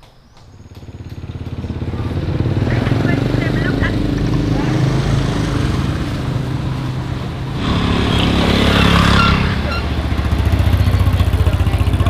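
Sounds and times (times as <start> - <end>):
small engine running: 0.5 - 12.0
rushing noise: 2.8 - 11.1.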